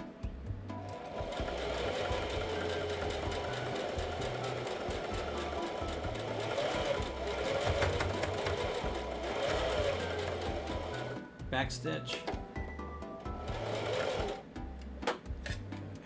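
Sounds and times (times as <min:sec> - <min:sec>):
background music with bass line: 0:00.0 - 0:16.0
sewing machine running: 0:00.8 - 0:11.3, 0:13.2 - 0:14.6.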